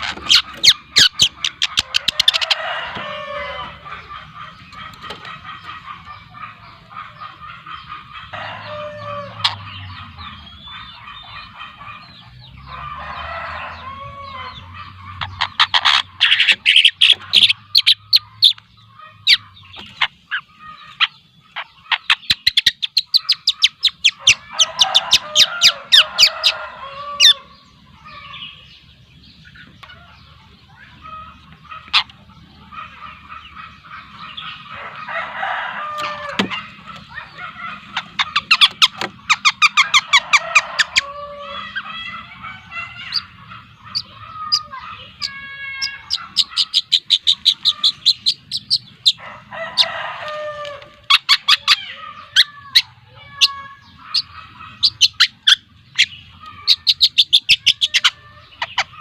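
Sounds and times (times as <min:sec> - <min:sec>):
shrike scratchy chatter: 0:29.4 - 0:59.0.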